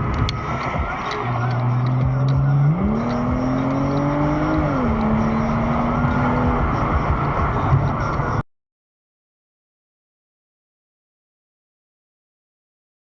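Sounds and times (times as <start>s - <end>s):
car engine running: 0.0s - 8.4s
road noise: 0.0s - 8.5s.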